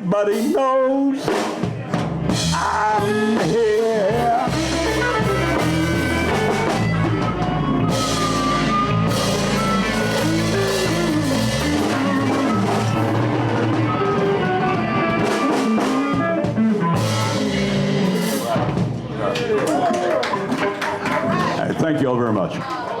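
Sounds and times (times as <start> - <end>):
blues band playing: 0.0 - 21.8
steady drum beat: 1.2 - 19.6
sliding lead guitar notes: 2.3 - 19.2.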